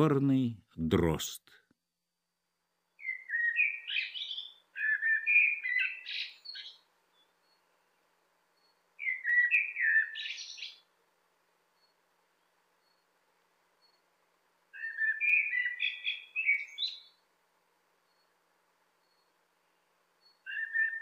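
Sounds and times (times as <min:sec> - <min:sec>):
blackbird singing: 0:03.0 - 0:07.6, 0:08.6 - 0:10.9, 0:14.7 - 0:17.2, 0:20.2 - 0:21.0.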